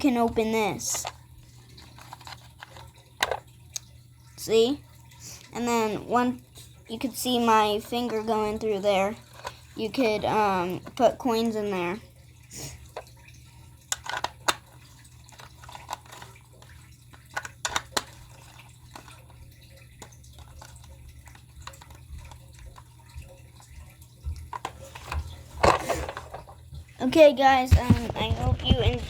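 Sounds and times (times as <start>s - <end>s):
low steady hum: 0.0s - 29.0s
toy bus clicking and tapping: 2.0s - 3.4s, 13.9s - 14.7s, 15.3s - 16.4s, 17.3s - 19.2s.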